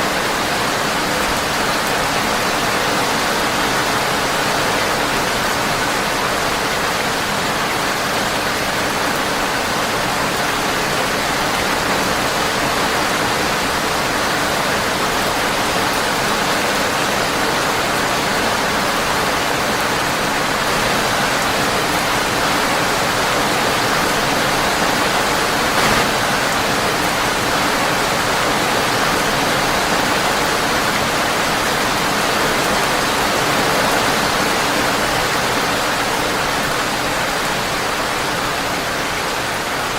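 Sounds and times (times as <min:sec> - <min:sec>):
rain on a windowpane: 0:00.0 - 0:39.9
brief pop: 0:25.8 - 0:26.2.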